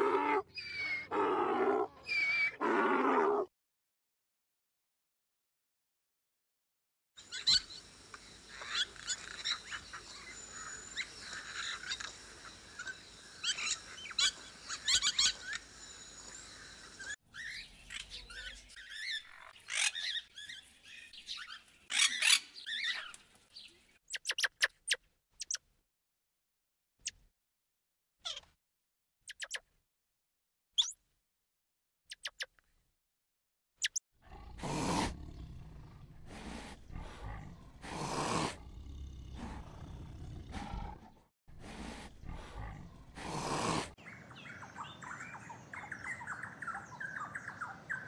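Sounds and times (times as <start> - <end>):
birds chirping and calling: 0.4 - 1.1, 7.2 - 24.7, 42.1 - 48.0.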